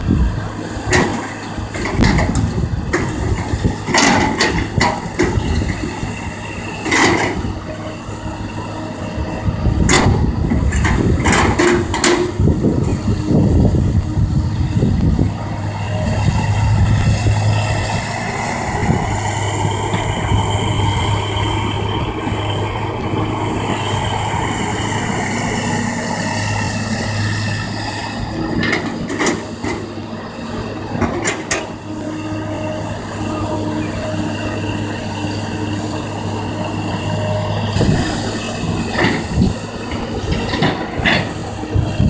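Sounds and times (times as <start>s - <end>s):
excavator diesel engine: 0.0s - 42.0s
heavy rumbling: 0.0s - 42.0s
hydraulic whine: 0.0s - 42.0s.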